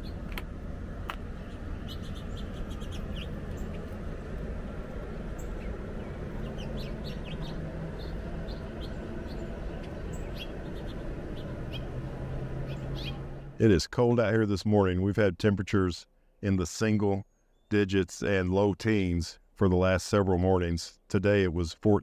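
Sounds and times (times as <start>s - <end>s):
small birds chirping: 0.0s - 0.3s, 1.1s - 13.6s
steady low rumble: 0.0s - 16.6s.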